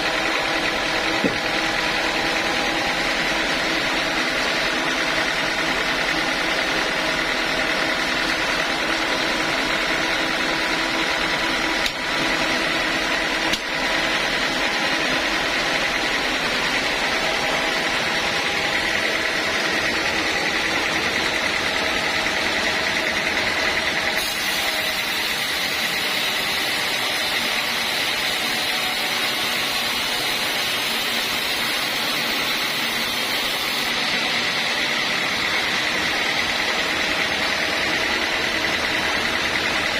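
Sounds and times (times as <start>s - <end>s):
band sawmill sawing wood: 0.0s - 39.9s.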